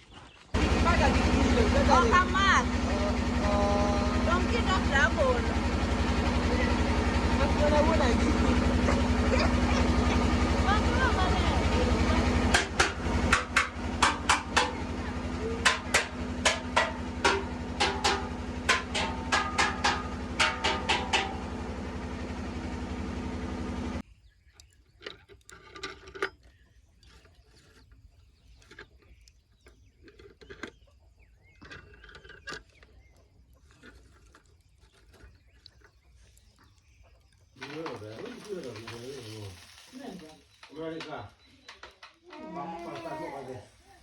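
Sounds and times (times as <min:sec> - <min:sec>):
vehicle engine running: 0:00.5 - 0:24.1, 0:34.6 - 0:41.0, 0:42.8 - 0:44.0
sharp knocks and rattles: 0:04.2 - 0:22.4, 0:37.6 - 0:39.8.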